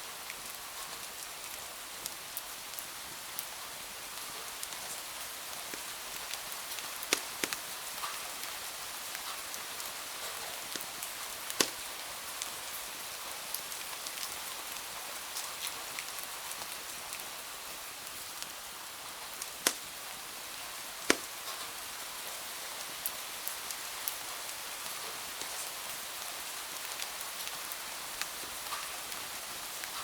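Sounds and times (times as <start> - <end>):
steady rain hiss: 0.0 - 30.0
wood fire crackling: 2.1 - 22.1, 22.7 - 30.0
loud fire pops: 7.1 - 7.6, 10.7 - 11.9, 21.1 - 21.6.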